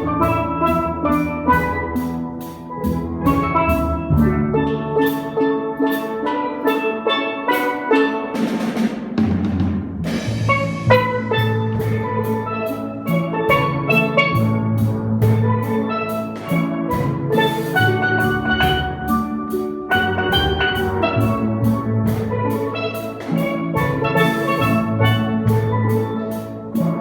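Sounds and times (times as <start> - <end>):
drum kit beat: 0.0 - 6.8, 7.5 - 27.0
steelpan melody: 0.0 - 27.0
cymbal crash: 8.4 - 19.2
deep bass notes: 9.4 - 19.3.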